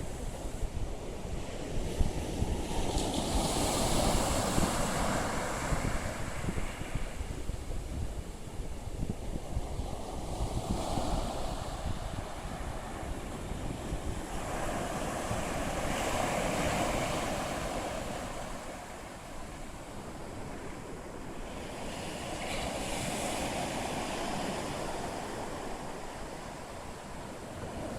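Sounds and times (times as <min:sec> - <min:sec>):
waves washing onto shore: 0:00.0 - 0:27.9
wind on microphone: 0:00.0 - 0:27.9.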